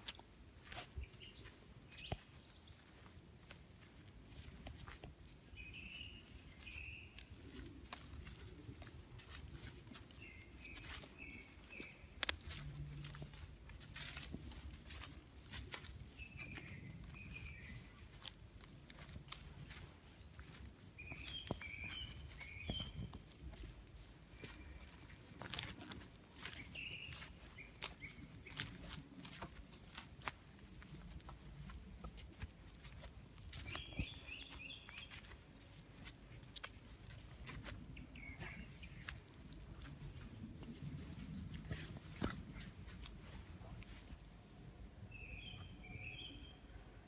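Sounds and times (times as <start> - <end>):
small birds chirping: 0.6 - 44.1, 45.1 - 46.6
bird chirping: 5.5 - 7.3, 10.0 - 13.6, 16.1 - 18.0, 21.0 - 23.2, 26.4 - 28.8, 33.6 - 35.3, 38.0 - 39.2, 45.1 - 46.8.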